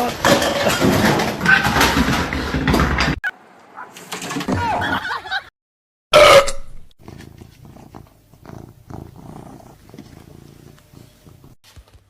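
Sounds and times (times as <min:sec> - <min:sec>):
cat purring: 0:07.0 - 0:11.6.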